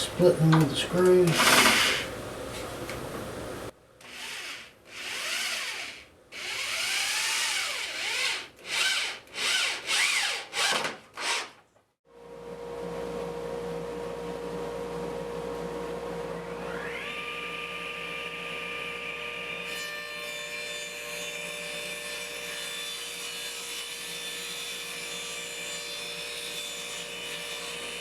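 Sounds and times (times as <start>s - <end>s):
cordless drill driving screws: 1.3s - 2.1s, 4.0s - 11.6s.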